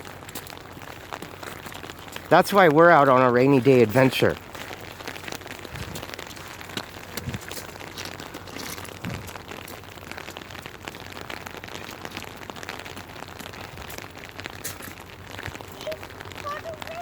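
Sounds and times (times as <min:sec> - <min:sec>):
rain falling: 0:00.0 - 0:17.0
dull low thumps: 0:05.6 - 0:06.2.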